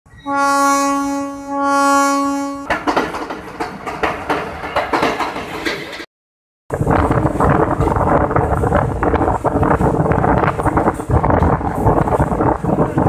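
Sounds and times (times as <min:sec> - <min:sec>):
train horn blasts: 0:00.1 - 0:02.7
train wheels clacking on track: 0:02.6 - 0:06.1.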